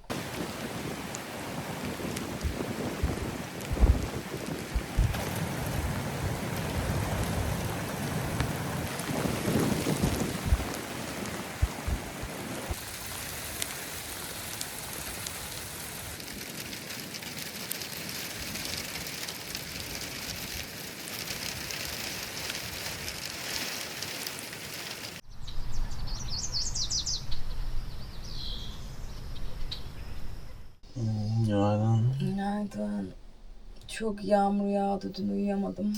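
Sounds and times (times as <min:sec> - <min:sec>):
heavy rain pouring: 0:00.1 - 0:25.2
bird chirps: 0:25.3 - 0:30.7
low hum: 0:25.3 - 0:34.6.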